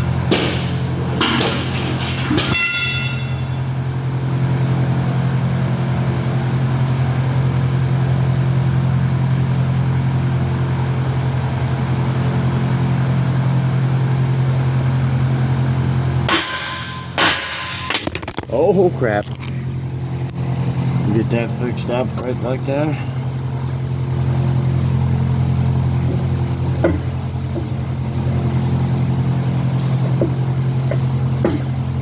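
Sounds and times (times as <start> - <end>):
engine droning: 0.0 - 32.0
high metallic ring: 2.1 - 3.7.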